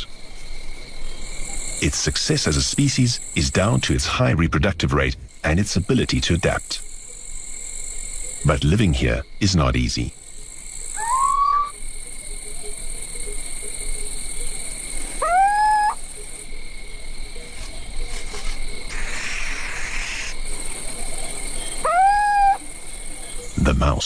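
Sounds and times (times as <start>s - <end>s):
crickets chirping: 0.0s - 24.0s
owl calling: 10.9s - 11.8s, 15.0s - 16.4s, 18.9s - 20.4s, 21.6s - 22.7s.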